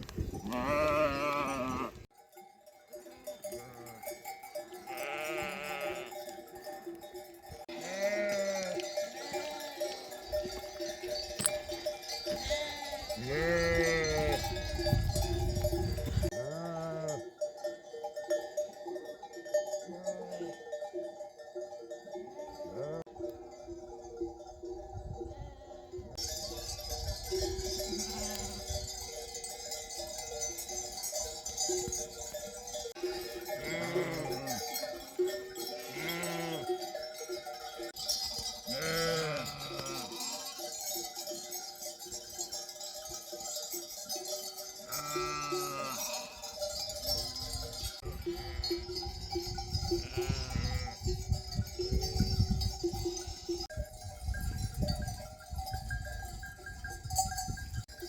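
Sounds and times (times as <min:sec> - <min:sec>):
sheep bells clinking: 0:00.0 - 0:58.0
sheep and lambs bleating: 0:00.4 - 0:02.1, 0:04.8 - 0:06.3, 0:07.6 - 0:10.5, 0:12.2 - 0:15.5, 0:16.2 - 0:17.3, 0:19.8 - 0:20.7, 0:22.2 - 0:23.1, 0:27.7 - 0:28.7, 0:32.9 - 0:36.8, 0:38.6 - 0:40.8, 0:44.8 - 0:49.1, 0:49.8 - 0:51.1, 0:53.1 - 0:53.7.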